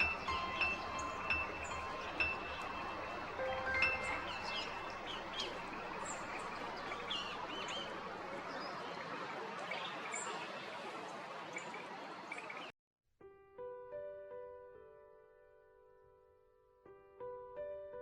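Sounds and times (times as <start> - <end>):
steady background hiss: 0.0 - 9.1
small birds chirping: 0.0 - 12.7.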